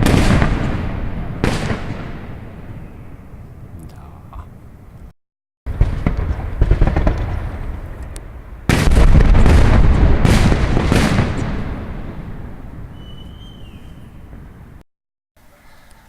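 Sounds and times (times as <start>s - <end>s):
fireworks bursts and crackles: 0.0s - 3.5s, 5.7s - 14.8s
heavy fireworks booms: 0.0s - 3.8s, 5.7s - 14.8s.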